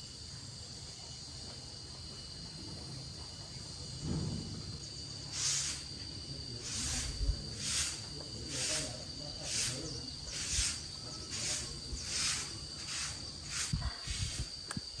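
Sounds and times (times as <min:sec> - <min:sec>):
high-pitched insect drone: 0:04.7 - 0:15.0
hand scraping hiss: 0:05.2 - 0:15.0.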